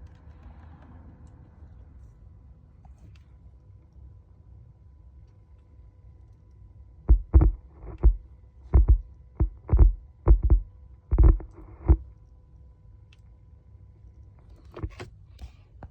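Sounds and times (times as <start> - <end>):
faint low hum: 0.0 - 15.9
subwoofer deep thumps: 7.1 - 12.0.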